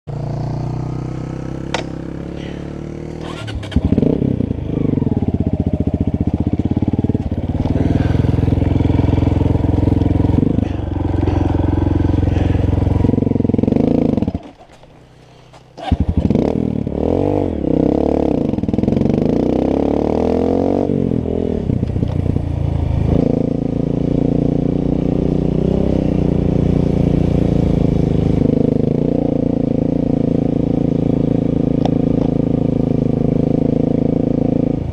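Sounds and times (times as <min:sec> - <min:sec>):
dirt bike engines revving: 0:00.2 - 0:20.9.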